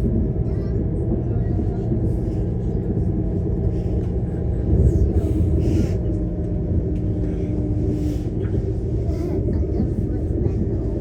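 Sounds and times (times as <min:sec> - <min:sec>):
passenger train rumbling: 0:00.0 - 0:11.0.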